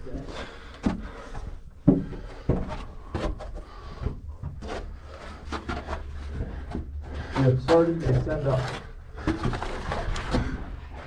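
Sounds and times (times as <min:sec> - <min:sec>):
scraping and knocking against rock: 0:01.8 - 0:10.7.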